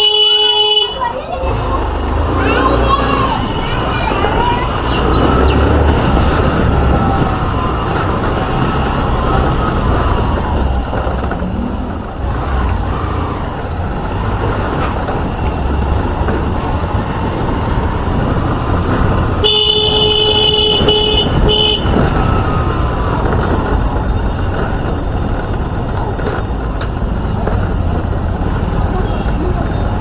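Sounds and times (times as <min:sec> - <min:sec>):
vehicle horn blasts: 0:00.0 - 0:01.1, 0:19.4 - 0:22.0
road and wind noise: 0:00.0 - 0:30.0.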